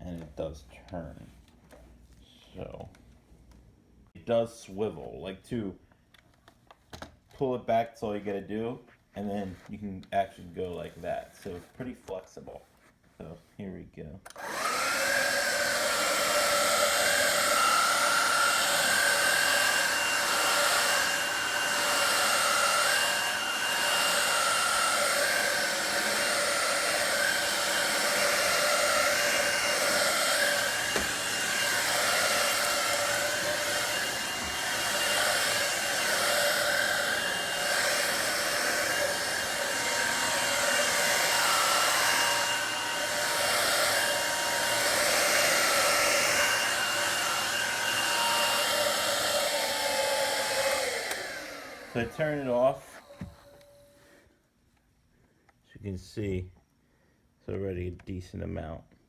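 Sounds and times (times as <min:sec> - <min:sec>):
stick vacuum running: 0:14.4 - 0:53.9.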